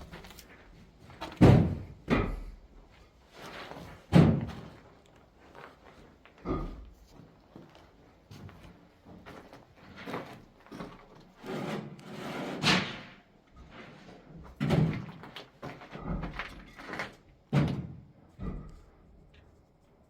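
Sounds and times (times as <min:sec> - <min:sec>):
knocks and scraping on masonry: 0:00.0 - 0:05.0, 0:05.7 - 0:19.8.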